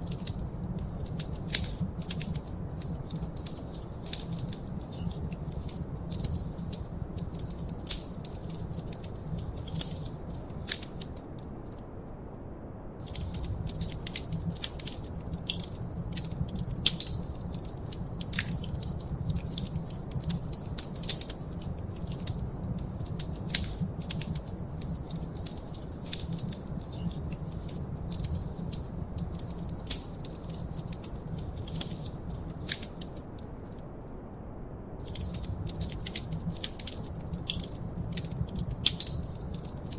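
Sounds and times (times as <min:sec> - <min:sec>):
wood fire snapping and popping: 0:00.0 - 0:11.8, 0:13.0 - 0:33.7, 0:35.0 - 0:39.9
low rumble of burning: 0:00.0 - 0:39.9.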